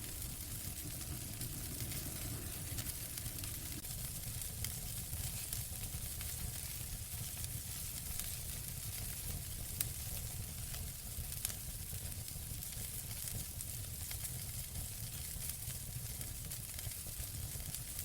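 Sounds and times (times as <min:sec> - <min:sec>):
burning logs popping: 0:00.0 - 0:06.3
wood fire crackling: 0:00.0 - 0:18.0.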